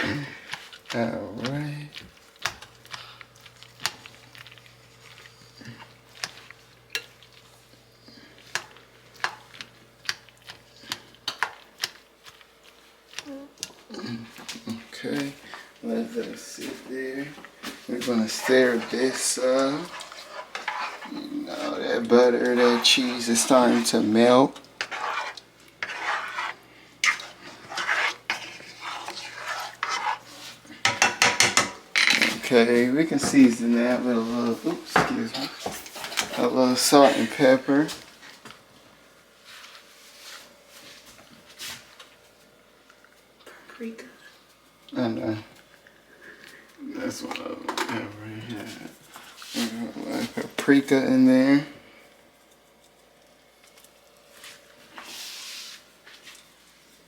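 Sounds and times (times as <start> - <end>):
utensil stirring and scraping pot: 0.0 - 38.1, 47.0 - 53.1.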